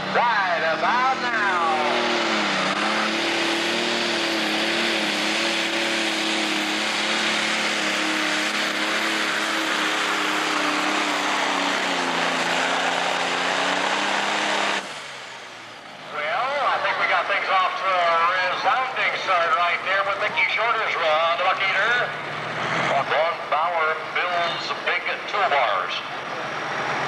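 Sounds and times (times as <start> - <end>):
tractor diesel engine at full power: 0.0 - 27.0.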